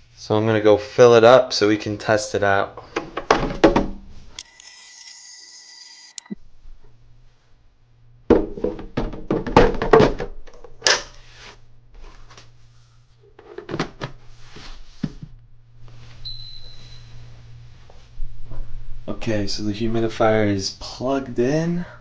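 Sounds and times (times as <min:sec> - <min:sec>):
plastic tank thunks and knocks: 0:03.2 - 0:04.0, 0:08.3 - 0:10.3
low steady hum: 0:06.2 - 0:22.0.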